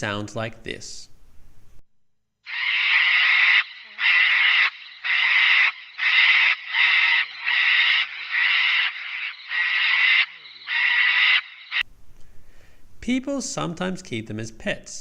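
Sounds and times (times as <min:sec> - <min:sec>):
cockatoo screeching: 0:02.5 - 0:11.8.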